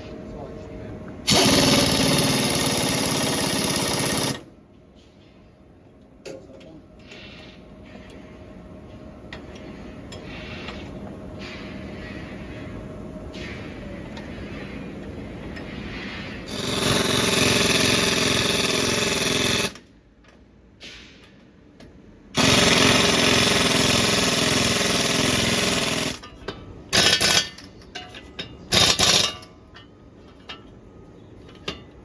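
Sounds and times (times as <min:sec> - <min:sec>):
pneumatic impact wrench hammering: 0:01.2 - 0:04.5, 0:15.6 - 0:19.9, 0:22.3 - 0:30.7.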